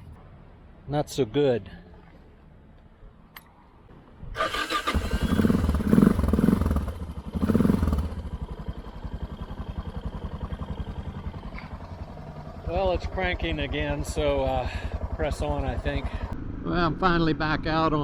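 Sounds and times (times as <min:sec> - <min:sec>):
electric starter turning over: 0:04.4 - 0:06.3
motorcycle engine revving and idling: 0:04.4 - 0:16.6.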